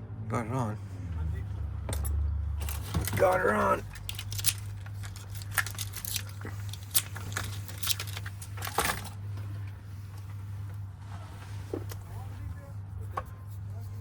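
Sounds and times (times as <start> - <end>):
door lock parts clicking: 1.9 - 9.2.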